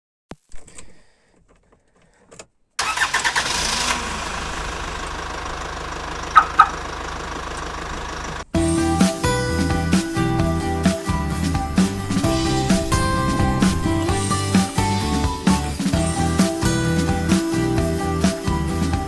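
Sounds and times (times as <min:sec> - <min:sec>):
car engine running: 0:03.5 - 0:08.6, 0:09.4 - 0:16.9.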